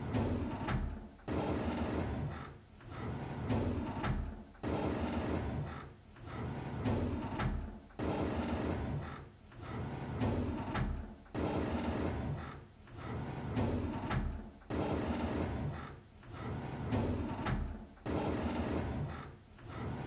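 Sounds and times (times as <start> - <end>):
drawer sliding open with clicks: 2.8 - 5.6, 6.2 - 20.0.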